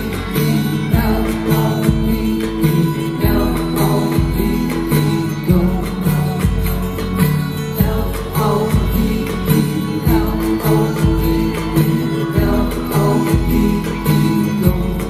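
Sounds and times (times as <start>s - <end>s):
live band music: 0.0s - 15.0s.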